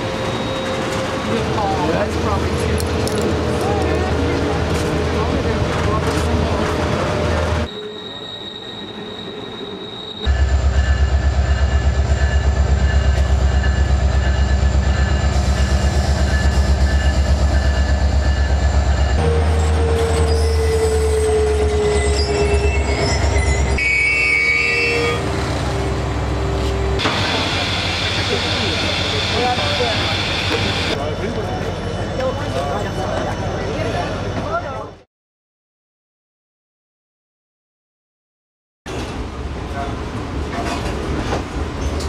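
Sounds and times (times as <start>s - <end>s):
high train squeals: 0.0s - 2.4s, 7.3s - 35.0s, 40.6s - 42.0s
long squeal falling in pitch: 7.7s - 10.5s, 19.5s - 25.2s
diesel locomotive rhythmic throb: 10.3s - 20.2s.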